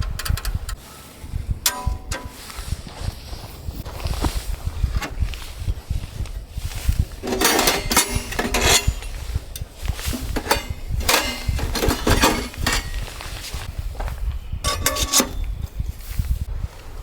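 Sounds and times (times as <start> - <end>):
wind rumble on microphone: 0.0 - 17.0
metal cookware clinking: 1.7 - 2.6, 7.2 - 13.7, 14.6 - 15.5.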